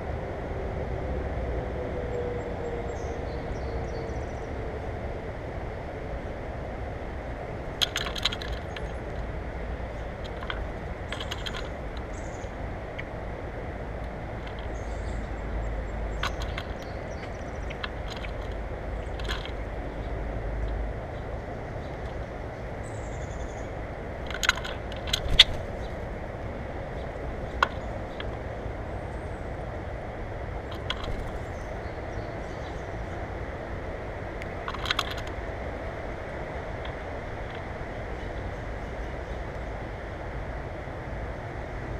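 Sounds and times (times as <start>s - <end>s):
steady low rumble: 4.1s - 41.7s
birds pecking at feeder: 7.7s - 13.1s, 14.0s - 23.6s, 24.2s - 28.5s, 30.6s - 32.8s, 34.4s - 35.5s.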